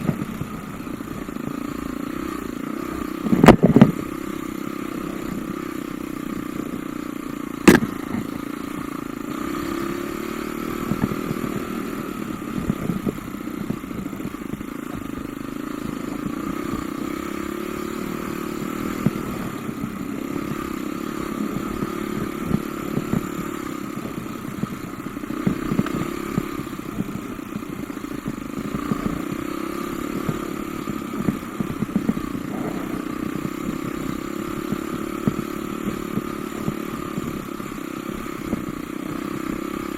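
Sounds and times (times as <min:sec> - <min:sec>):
off-road motorcycle engine: 0:00.0 - 0:39.9
sharp loud click: 0:07.6 - 0:08.3.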